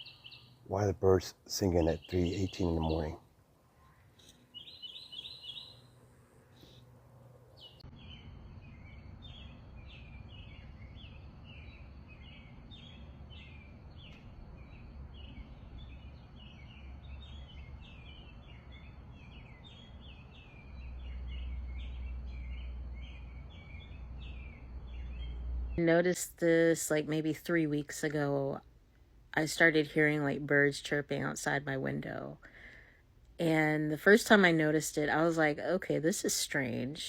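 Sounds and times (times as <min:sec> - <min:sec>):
songbird chirping: 0:00.0 - 0:37.0
low steady rumble: 0:06.0 - 0:29.4.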